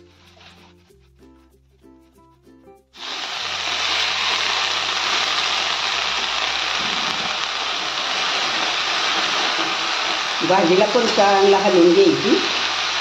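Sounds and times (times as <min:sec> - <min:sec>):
leaves sizzling in hot oil: 0:03.0 - 0:13.0.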